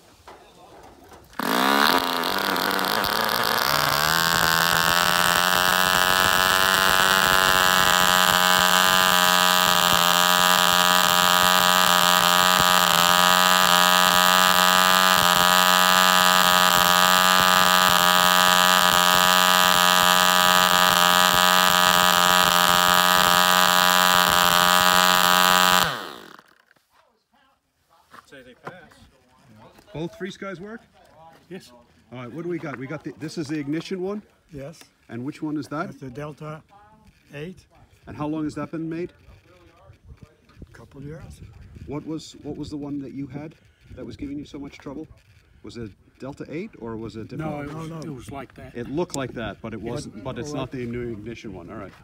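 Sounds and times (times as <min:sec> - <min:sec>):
small model engine running: 0:01.4 - 0:26.7.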